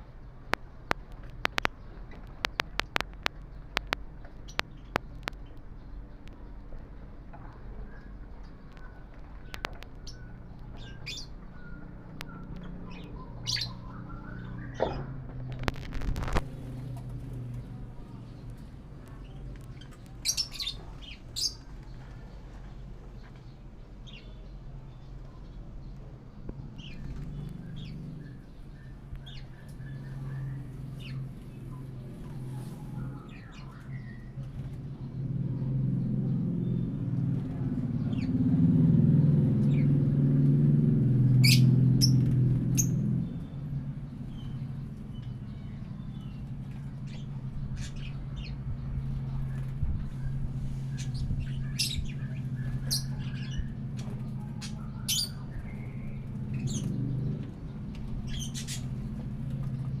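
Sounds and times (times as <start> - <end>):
steady low hum: 0.0 - 60.0
birds chirping and squawking: 1.0 - 60.0.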